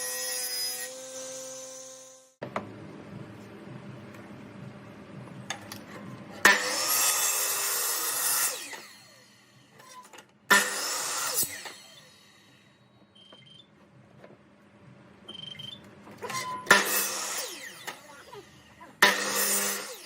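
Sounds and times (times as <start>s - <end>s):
power tool cutting wood: 0.0s - 2.4s, 6.4s - 12.6s, 16.2s - 20.0s.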